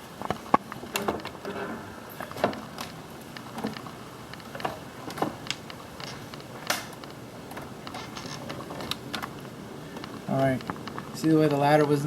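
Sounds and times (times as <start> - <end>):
knocks taps and creaks: 0.2 - 12.0.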